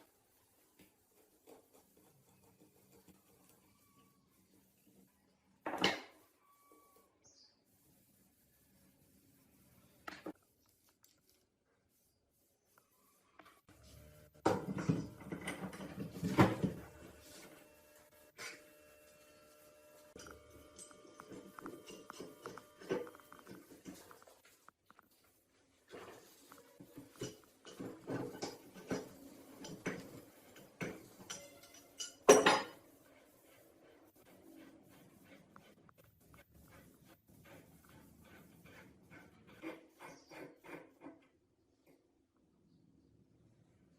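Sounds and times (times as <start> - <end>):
hard parts knocking and scraping: 14.4 - 17.2, 20.1 - 25.1, 25.9 - 33.2.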